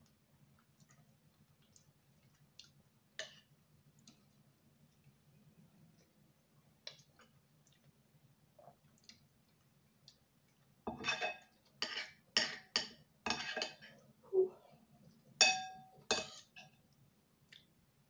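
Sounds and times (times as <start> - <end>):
utensil clinking against dish: 15.4 - 16.7.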